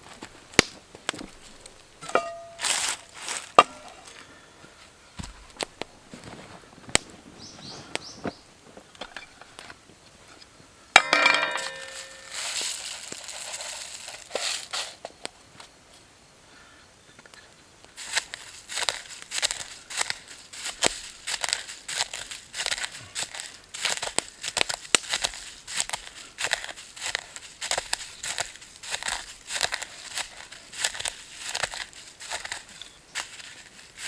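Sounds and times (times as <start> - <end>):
wood fire crackling: 0.0 - 9.8, 10.9 - 15.4, 17.3 - 34.0
metal cookware handled: 2.0 - 4.1, 11.0 - 12.6
ringing metal clang: 2.0 - 4.1, 11.0 - 12.7
hiss: 13.6 - 15.1.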